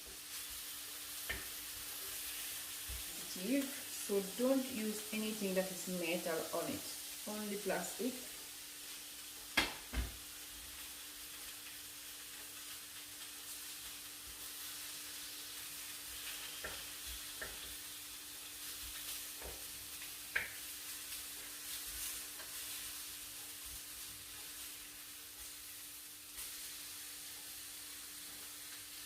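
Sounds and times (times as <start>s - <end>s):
chicken sizzling in a frying pan: 0.0s - 29.0s.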